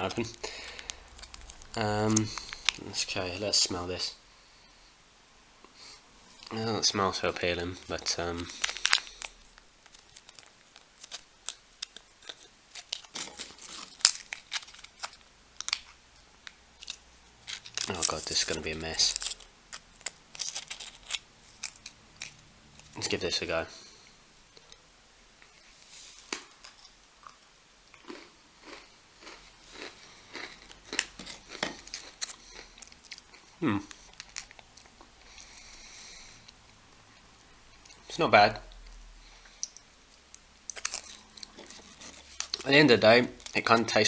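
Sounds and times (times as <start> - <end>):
person chewing crunchy cracker: 0.0 - 3.1, 7.7 - 16.0, 16.8 - 23.0, 26.2 - 36.7, 38.7 - 44.0
plastic packaging crinkling: 0.0 - 3.7, 7.2 - 16.0, 16.8 - 23.2, 33.9 - 35.0, 40.7 - 44.0.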